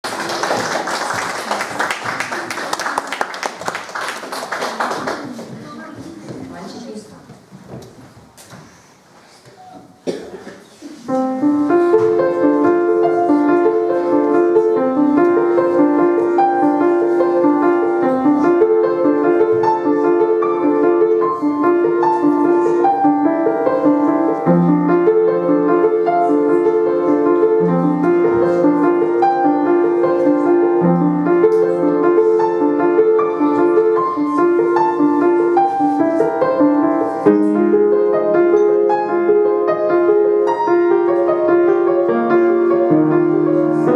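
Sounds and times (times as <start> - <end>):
solo piano piece: 11.1 - 43.9.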